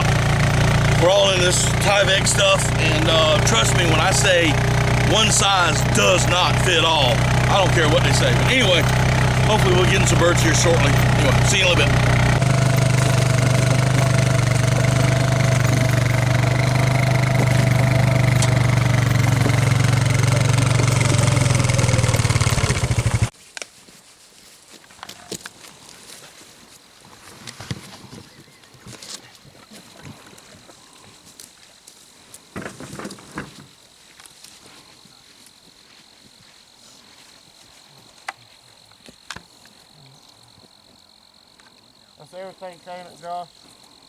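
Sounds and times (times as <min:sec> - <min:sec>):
quad bike engine running: 0:00.0 - 0:23.3
steady whine: 0:00.0 - 0:23.3.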